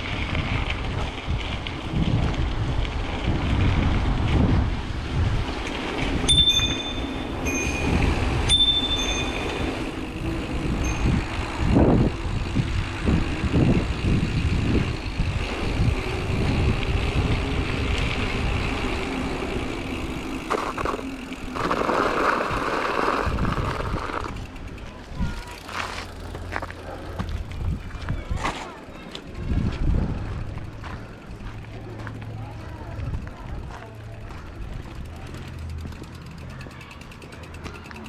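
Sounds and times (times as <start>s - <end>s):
wind on microphone: 0.0s - 25.7s, 27.1s - 28.6s, 29.2s - 31.5s
mountain bike rattling on trail: 0.0s - 38.0s
high-pitched squeaks: 6.3s - 9.8s.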